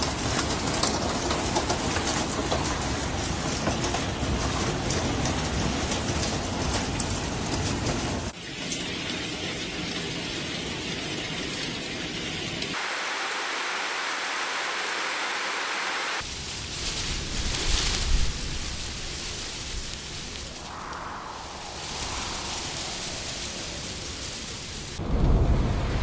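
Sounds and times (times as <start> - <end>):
heavy rain hissing: 12.7 - 25.2.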